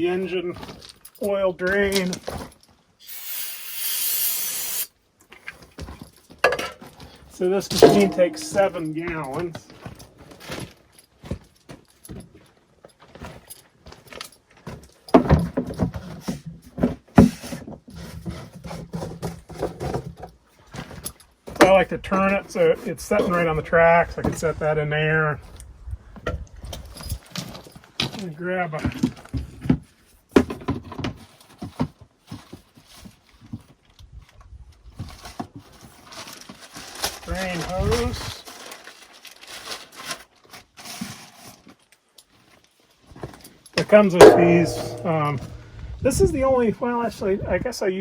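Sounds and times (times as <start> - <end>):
knocks and clunks of handled gear: 5.4 - 21.7
metallic tool clinks and knocks: 7.7 - 9.0, 44.2 - 45.6.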